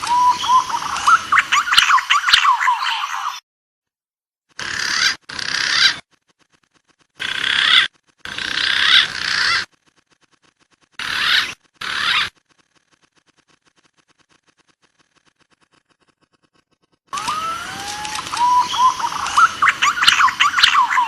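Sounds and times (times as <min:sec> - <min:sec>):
bird whistling: 0:00.0 - 0:03.4, 0:17.2 - 0:21.0.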